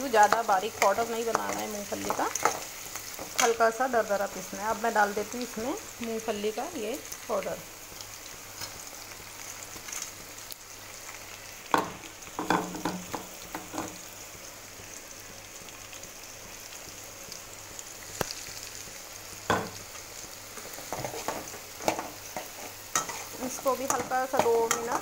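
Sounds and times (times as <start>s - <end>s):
food sizzling in hot oil: 0.0s - 25.0s
metal spatula scraping a pan: 20.6s - 25.0s.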